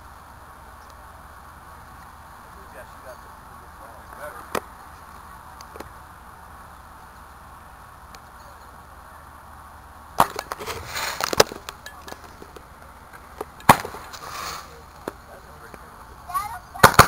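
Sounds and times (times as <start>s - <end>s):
faint background hiss: 0.0s - 17.0s
fireworks hissing and crackling: 0.0s - 17.0s
firework bangs: 10.2s - 12.5s, 13.2s - 15.3s, 16.7s - 17.0s.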